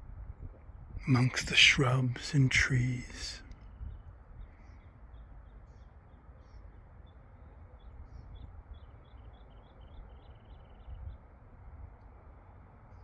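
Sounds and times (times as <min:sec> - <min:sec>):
wind rumble on microphone: 0:00.0 - 0:01.0, 0:03.5 - 0:04.6.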